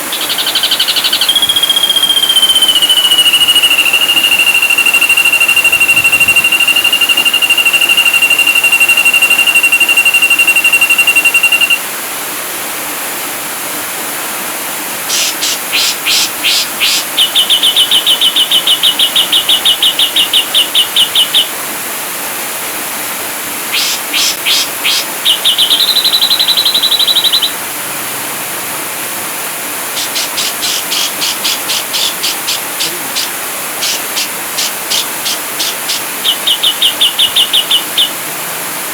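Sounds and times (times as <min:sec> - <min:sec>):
bird trilling and ticking: 0:00.0 - 0:11.8, 0:15.1 - 0:21.5, 0:23.7 - 0:27.6, 0:29.9 - 0:38.2
steady hiss: 0:00.0 - 0:38.9.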